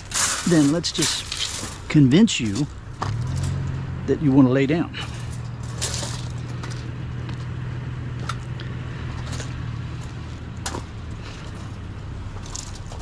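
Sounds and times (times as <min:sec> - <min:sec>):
wire fencing clinking: 0:00.0 - 0:03.8, 0:05.0 - 0:07.5
vehicle engine idling: 0:00.0 - 0:13.0.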